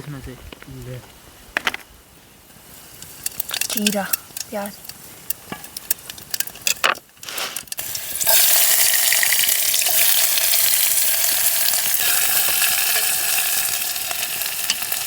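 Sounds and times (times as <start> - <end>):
onion sizzling in hot oil: 7.2 - 15.0.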